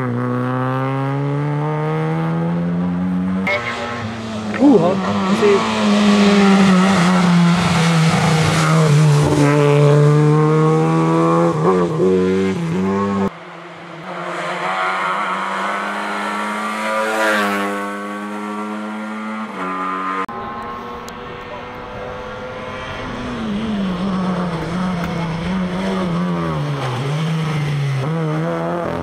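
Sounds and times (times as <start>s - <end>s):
rally car engine revving: 0.0s - 29.0s.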